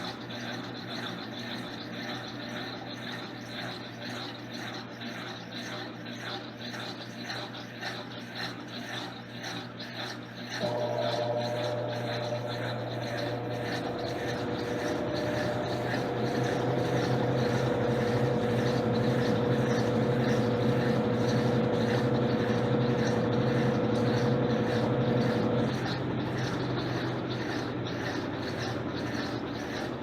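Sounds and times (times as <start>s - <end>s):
washing machine motor hum: 0.0s - 30.0s
high-pitched whine: 10.6s - 30.0s.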